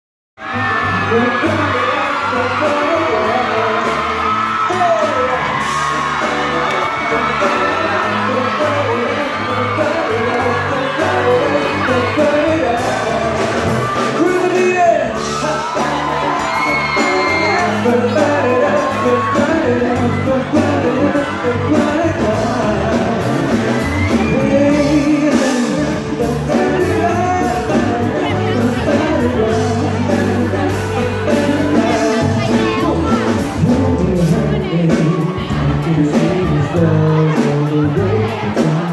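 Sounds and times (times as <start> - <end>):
crowd whooping and shouting: 0.4 - 38.9
live pop band with male singer: 0.4 - 38.9.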